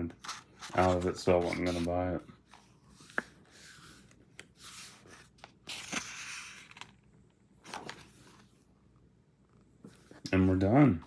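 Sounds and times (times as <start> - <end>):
book pages turning: 0.1 - 7.0, 7.6 - 8.5.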